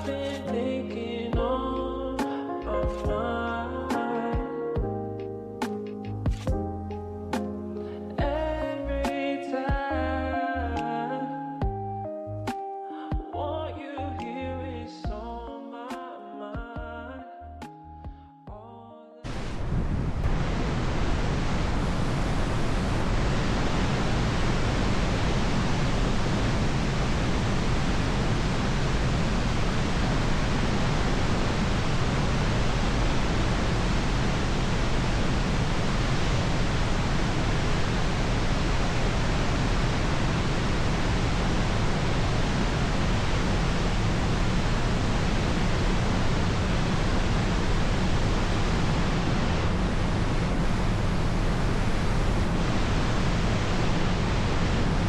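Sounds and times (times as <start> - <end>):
wind rushing: 19.3 - 55.0.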